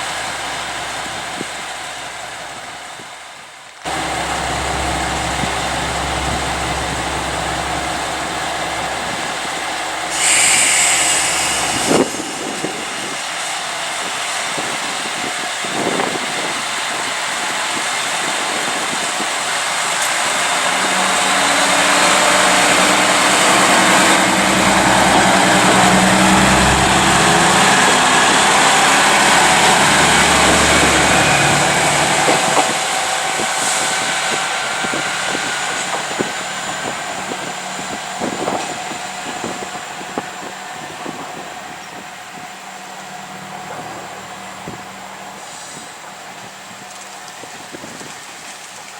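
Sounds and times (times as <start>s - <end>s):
diesel railcar engine running: 0.0s - 48.9s
air hiss: 10.0s - 13.9s.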